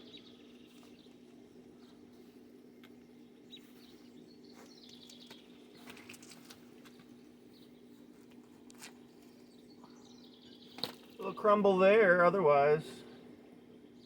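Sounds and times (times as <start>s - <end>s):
steady low hum: 0.0s - 14.0s
bird chirps: 3.0s - 8.0s, 9.1s - 11.5s.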